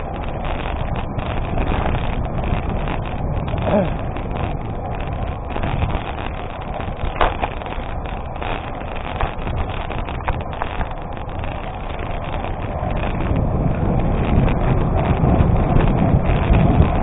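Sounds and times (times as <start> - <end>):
bicycle tyres rolling on gravel: 0.0 - 17.0
wind buffeting microphone: 0.0 - 17.0
stones clicking: 0.4 - 11.4.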